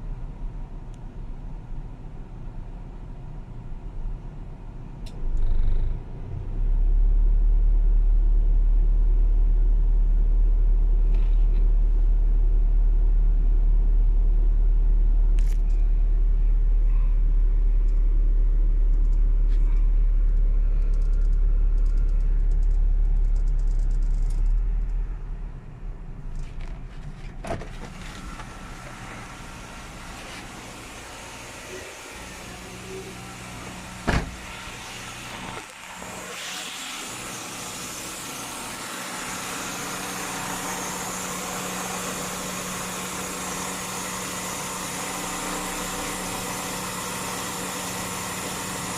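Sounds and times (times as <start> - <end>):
deep steady rumble: 0.0 - 36.3
car engine idling: 15.7 - 48.9.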